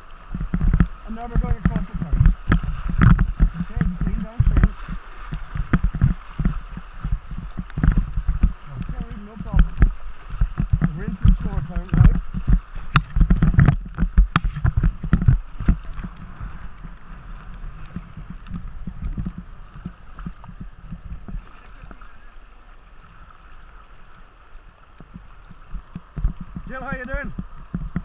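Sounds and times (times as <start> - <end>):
river water rushing and splashing: 0.0 - 28.0
low thumps: 0.3 - 21.4.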